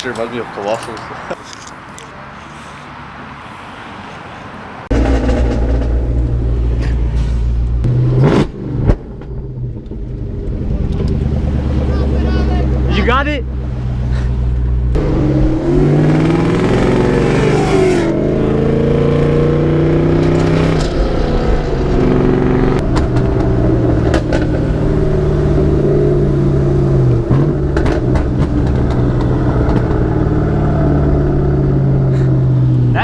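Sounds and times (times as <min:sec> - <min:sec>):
car engine revving: 0:04.8 - 0:33.0.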